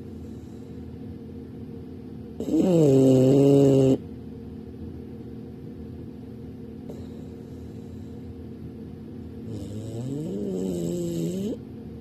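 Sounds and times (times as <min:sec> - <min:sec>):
steady low hum: 0:00.0 - 0:12.0
dog breathing: 0:02.4 - 0:04.0, 0:09.5 - 0:11.6
dog snoring: 0:02.4 - 0:04.0, 0:09.4 - 0:11.6.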